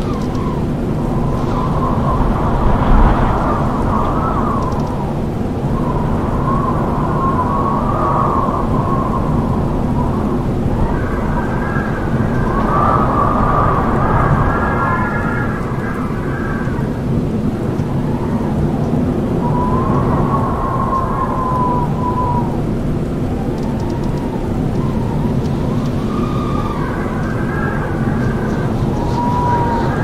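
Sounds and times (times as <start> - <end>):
wind rushing: 0.0 - 16.6
whistling wind howls: 0.0 - 30.0.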